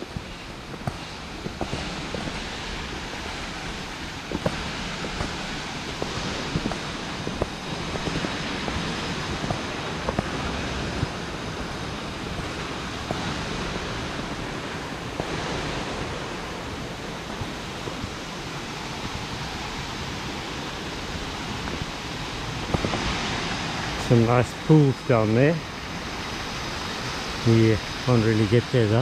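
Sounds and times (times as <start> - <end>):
mountain stream rushing: 0.0 - 29.0.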